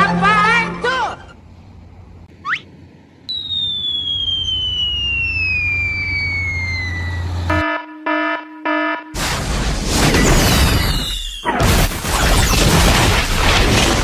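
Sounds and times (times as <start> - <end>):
low steady rumble: 0.0 - 7.6
long falling whistle: 3.3 - 7.7, 10.7 - 11.5
horn blasts: 6.8 - 9.2.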